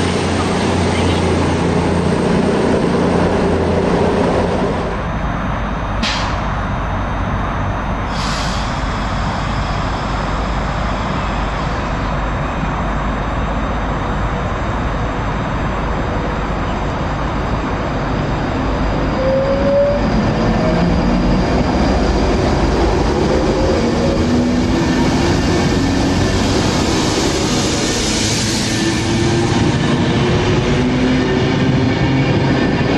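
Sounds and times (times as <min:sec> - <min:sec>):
diesel train rumbling: 0:00.0 - 0:32.9
rising whine: 0:08.8 - 0:32.9.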